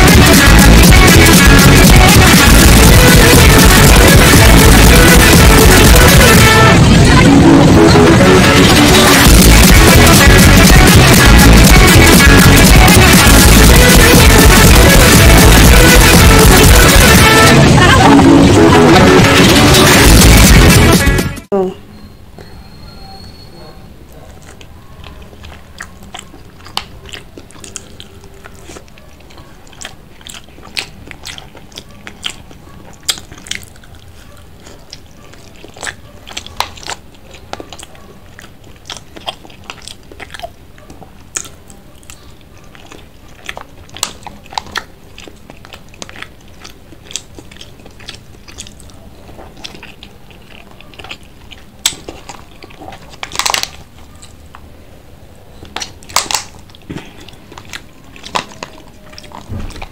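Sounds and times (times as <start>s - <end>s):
mouth clicks and smacks: 0.0s - 6.6s, 8.5s - 17.5s, 24.2s - 54.4s, 55.6s - 59.9s
close-miked chewing: 8.5s - 17.2s, 24.0s - 59.9s.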